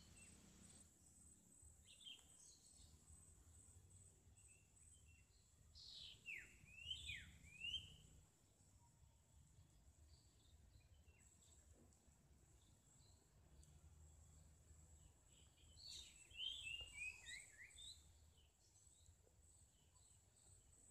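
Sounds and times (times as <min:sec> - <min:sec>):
birds chirping and whistling: 0:05.8 - 0:08.1, 0:15.3 - 0:18.2.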